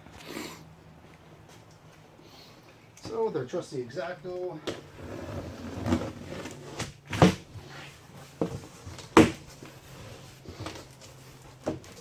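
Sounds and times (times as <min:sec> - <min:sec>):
cardboard box scraping and knocking: 0:04.9 - 0:10.8.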